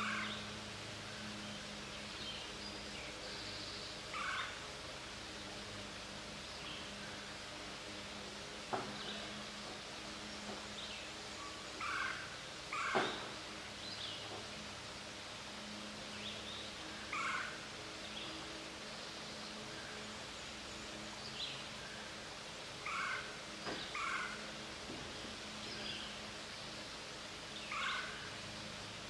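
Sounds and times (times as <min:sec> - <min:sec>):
woodland birds calling: 0:00.0 - 0:04.7, 0:08.8 - 0:14.6, 0:16.1 - 0:22.2, 0:22.8 - 0:24.6, 0:27.5 - 0:28.4.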